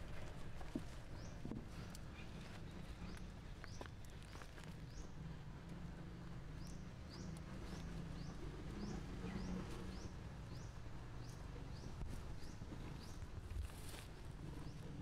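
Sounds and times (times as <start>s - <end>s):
bird chirping: 6.5s - 13.3s.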